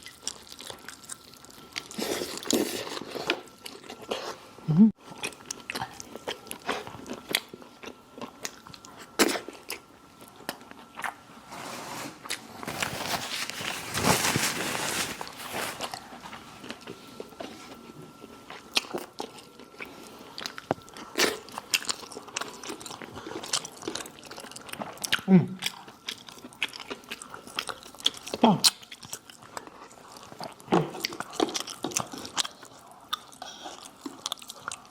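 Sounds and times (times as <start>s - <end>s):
chewing crispy fried chicken: 0.0s - 4.4s, 18.2s - 34.9s.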